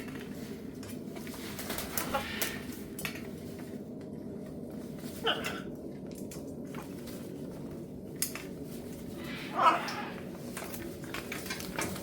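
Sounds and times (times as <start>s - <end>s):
light clicks and clatter: 5.8s - 9.2s, 9.8s - 12.0s.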